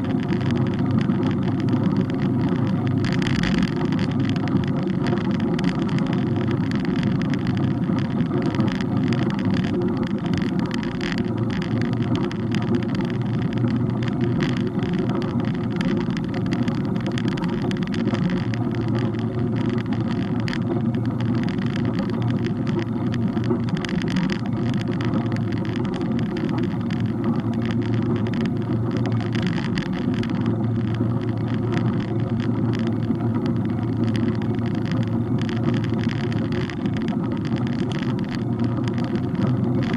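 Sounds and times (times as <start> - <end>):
small rattles and knocks: 0.0 - 39.9
wind and road rumble: 0.0 - 39.9.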